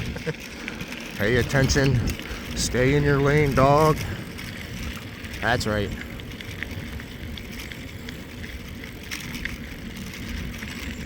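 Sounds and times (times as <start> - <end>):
bike clicks and rattles: 0.0 - 11.0
bike tyres rumbling on trail: 0.0 - 11.0.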